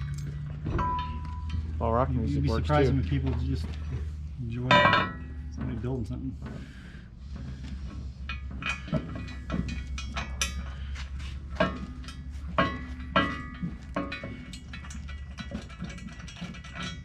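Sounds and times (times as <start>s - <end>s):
ringing metal knocks: 0.0s - 2.1s, 3.1s - 6.2s, 8.2s - 17.0s
steady low hum: 0.0s - 17.0s
tools clinking on steel: 4.6s - 5.7s.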